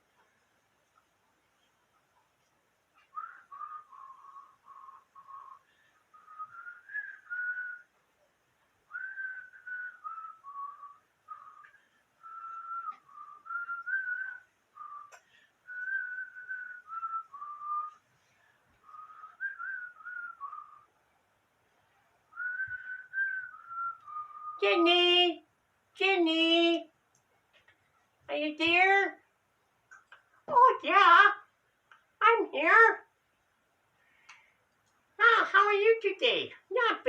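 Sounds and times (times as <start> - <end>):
person whistling a tune: 3.1 - 7.9, 8.9 - 18.0, 18.8 - 20.9, 22.3 - 24.6.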